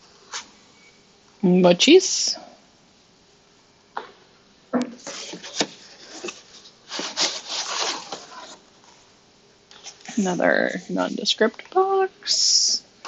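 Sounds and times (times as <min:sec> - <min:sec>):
wrappers crinkling and rustling: 0:05.1 - 0:09.1.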